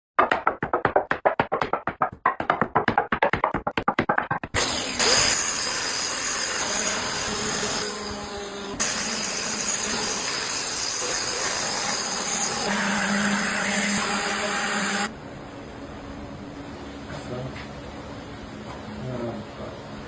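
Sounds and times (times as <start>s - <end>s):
power tool running on wood: 4.6s - 15.1s.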